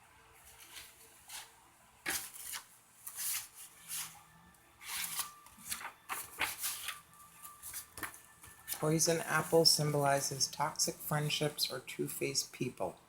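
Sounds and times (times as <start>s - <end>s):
stiff paper rustling and flicking: 0.5s - 4.2s, 4.8s - 8.9s.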